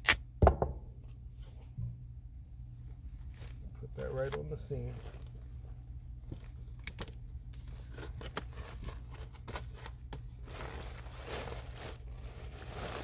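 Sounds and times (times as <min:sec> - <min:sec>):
steady low hum: 0:00.0 - 0:13.0
tape rustling: 0:03.1 - 0:13.0
tape crinkling: 0:04.3 - 0:13.0.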